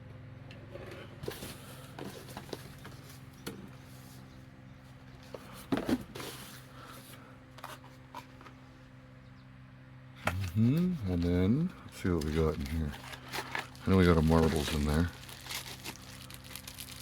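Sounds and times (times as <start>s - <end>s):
steady low hum: 0.0s - 17.0s
packaging rustling and clicking: 12.1s - 17.0s.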